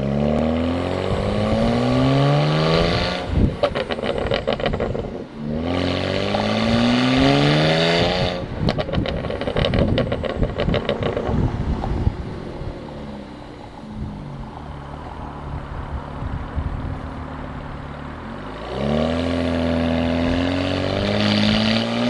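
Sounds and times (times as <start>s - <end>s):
car engine revving: 0.0s - 22.0s
exhaust pops and crackles: 3.4s - 5.2s, 8.4s - 12.1s.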